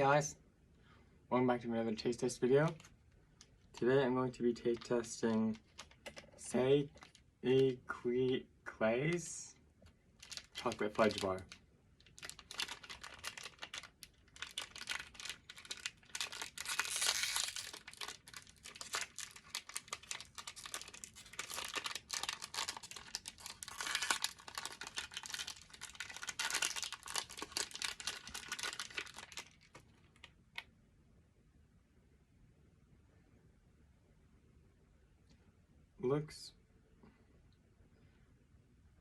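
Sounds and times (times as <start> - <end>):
plastic wrapper crinkling and tearing: 2.6 - 7.8, 10.2 - 30.7.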